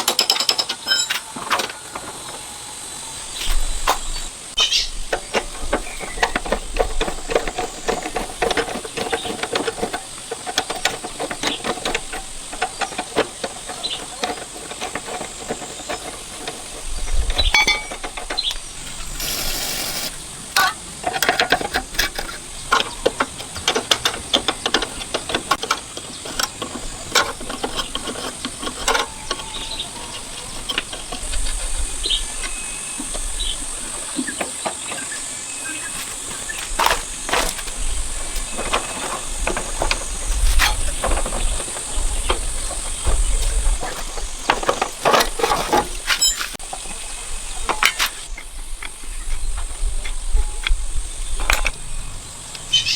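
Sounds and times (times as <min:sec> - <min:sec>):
tools clicking and knocking: 0:00.0 - 0:02.1, 0:03.9 - 0:33.3, 0:36.0 - 0:46.8, 0:51.4 - 0:51.8
steady high hiss: 0:16.8 - 0:26.2
loud hiss burst: 0:18.9 - 0:20.4.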